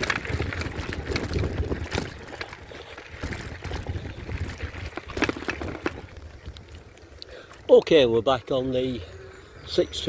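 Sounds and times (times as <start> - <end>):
wind rumbling on microphone: 0.0 - 7.2
bike tyre noise: 0.0 - 10.0
clicks and rattles: 3.2 - 6.6.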